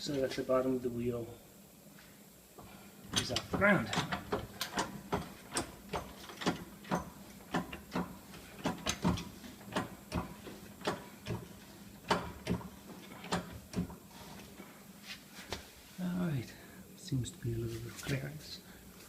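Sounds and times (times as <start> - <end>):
car jack clicking: 3.1 - 14.0.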